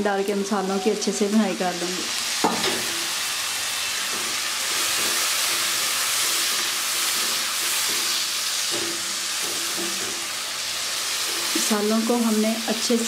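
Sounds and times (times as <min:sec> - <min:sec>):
paste sizzling in hot oil: 0:00.0 - 0:13.0
spatula stirring: 0:04.0 - 0:11.6.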